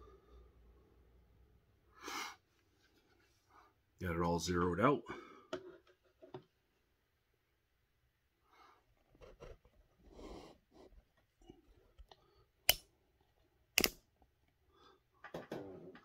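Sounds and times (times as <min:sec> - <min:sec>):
sharp clicks: 0:13.8 - 0:14.0.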